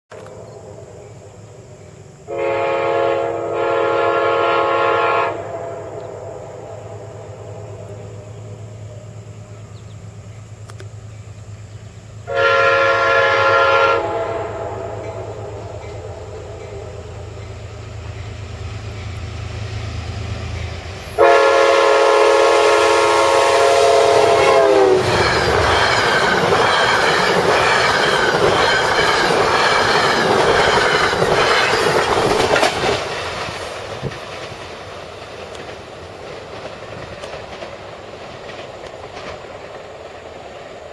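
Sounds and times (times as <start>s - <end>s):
train rumble: 0.1s - 40.9s
train horn blasts: 2.3s - 7.9s, 12.2s - 17.5s, 21.0s - 26.7s
train wheels clattering: 24.1s - 40.9s.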